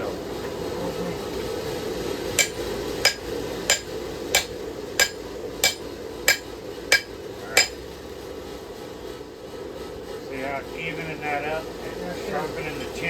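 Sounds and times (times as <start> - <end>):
steady low hum: 0.0 - 13.0
hammer striking steel on anvil: 2.4 - 7.8.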